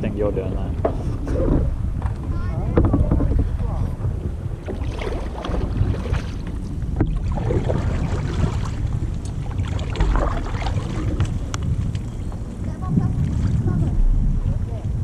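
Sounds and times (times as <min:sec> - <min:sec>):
wind on microphone: 0:00.0 - 0:15.0
water sloshing: 0:00.7 - 0:15.0
paddle splashes: 0:04.3 - 0:11.8, 0:13.0 - 0:14.5.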